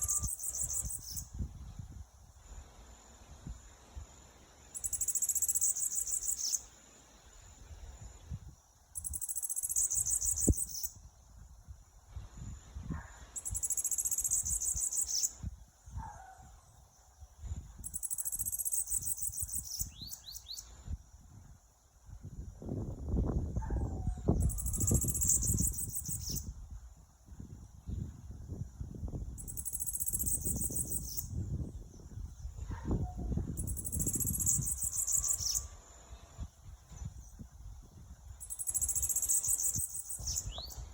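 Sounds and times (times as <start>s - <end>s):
bird buzzing trills: 0.0s - 1.3s, 33.6s - 35.8s.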